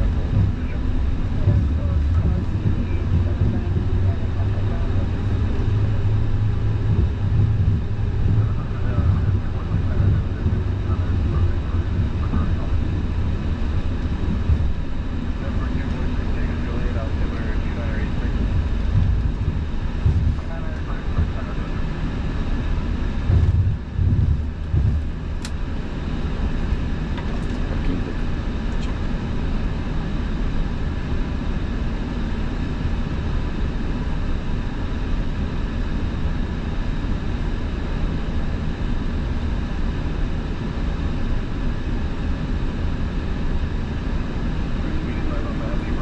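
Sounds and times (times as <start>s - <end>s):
low thumps: 0.0s - 25.9s
aircraft engines idling hum: 0.0s - 46.0s.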